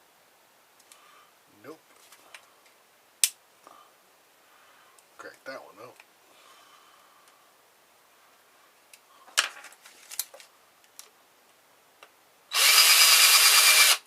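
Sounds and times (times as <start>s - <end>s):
power drill-driver spinning: 12.5s - 14.0s.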